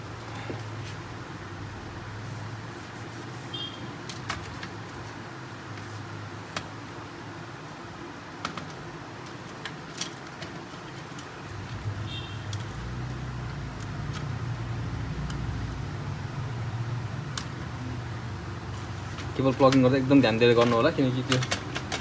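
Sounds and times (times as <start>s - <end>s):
low background hum: 0.0s - 22.0s
sharp clicks of printer parts: 4.0s - 5.1s, 18.8s - 22.0s.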